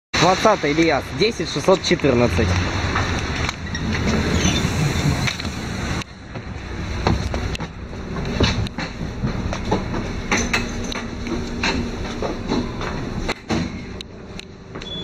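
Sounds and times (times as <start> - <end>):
bus engine and road noise: 0.2 - 15.0
rattles and knocks: 2.5 - 5.6, 6.3 - 14.0.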